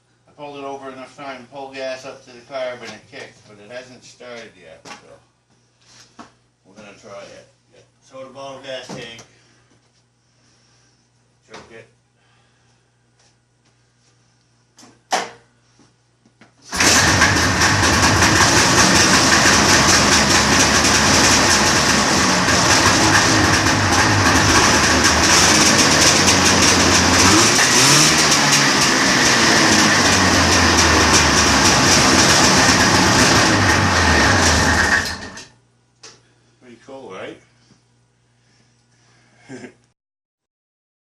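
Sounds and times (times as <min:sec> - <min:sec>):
two-stroke snowmobile engine running: 0:16.7 - 0:35.4.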